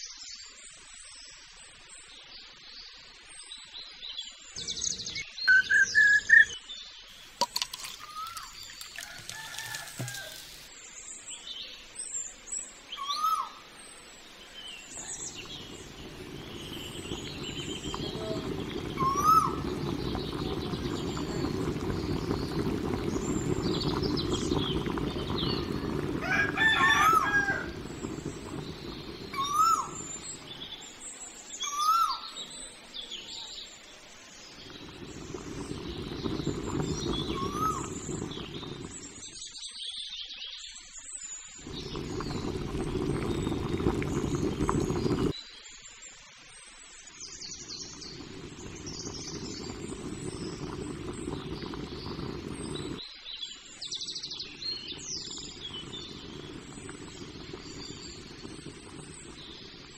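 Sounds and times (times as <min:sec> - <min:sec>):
birds chirping: 0:04.5 - 0:39.6, 0:41.6 - 0:45.4, 0:47.3 - 0:59.9
rooster crowing: 0:08.9 - 0:10.6, 0:26.1 - 0:27.9
low rushing noise: 0:15.0 - 0:30.9.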